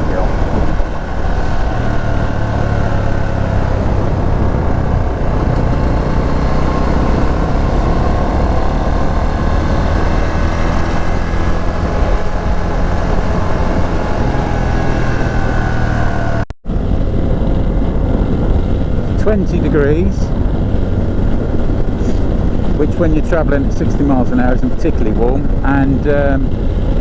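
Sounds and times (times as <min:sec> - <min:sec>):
motorcycle engine running: 0:00.0 - 0:19.4
wind and road noise: 0:00.0 - 0:27.0.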